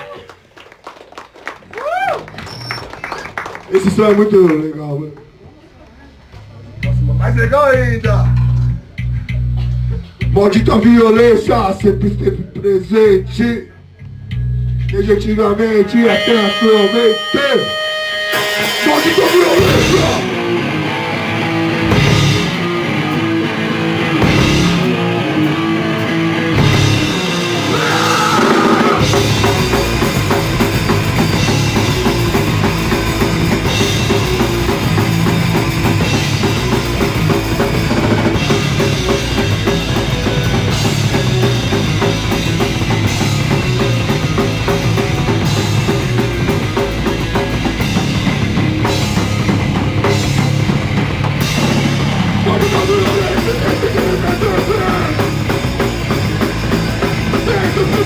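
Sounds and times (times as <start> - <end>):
live heavy rock band: 16.0 - 58.0.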